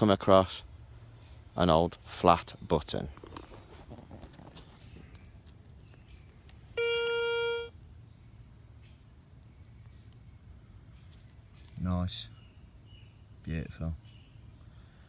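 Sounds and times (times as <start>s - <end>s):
faint outdoor background noise: 0.0s - 15.0s
metal detector target tone: 6.8s - 7.8s.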